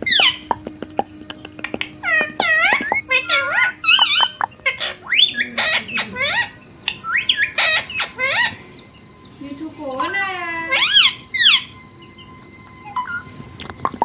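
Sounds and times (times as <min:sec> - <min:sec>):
parrot chirps and squawks: 0:00.0 - 0:08.6, 0:09.9 - 0:11.8.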